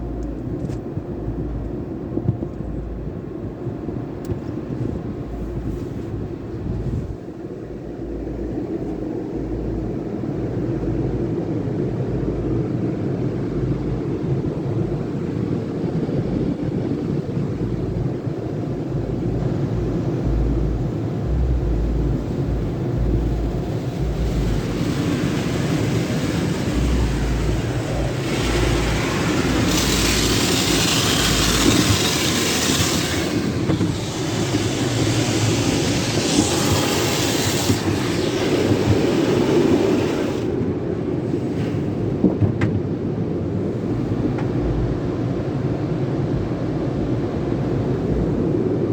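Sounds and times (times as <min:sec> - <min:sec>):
car wash equipment rumbling: 0:00.0 - 0:48.9
low thumps: 0:18.9 - 0:36.9
rising hiss: 0:21.3 - 0:40.6.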